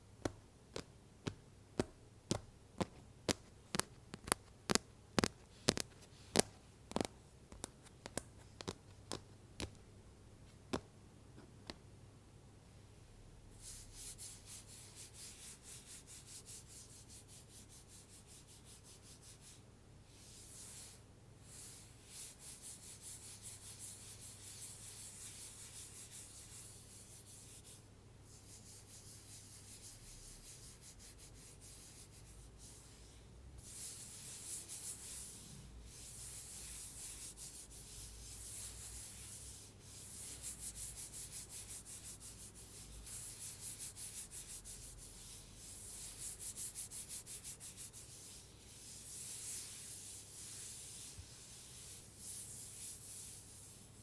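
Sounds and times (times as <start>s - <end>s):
stylus scratching tablet cover: 2.8s - 9.2s, 33.6s - 53.8s.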